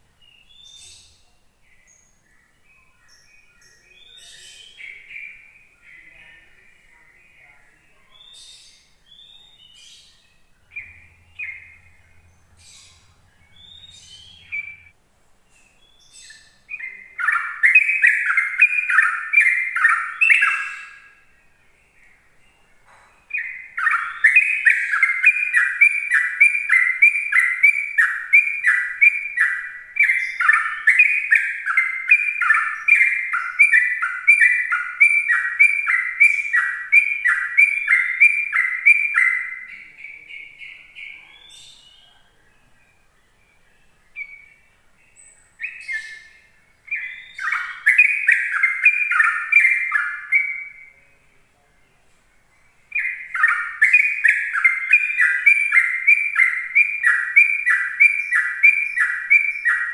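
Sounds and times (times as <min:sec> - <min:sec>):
bulbul singing: 0:00.0 - 0:51.5, 0:52.1 - 0:59.9.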